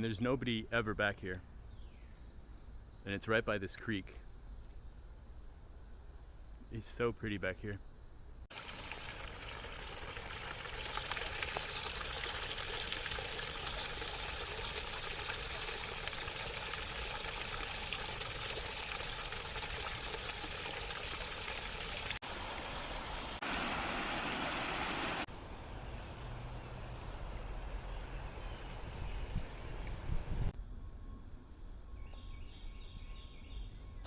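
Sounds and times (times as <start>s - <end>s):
creek water rushing: 8.5s - 30.5s.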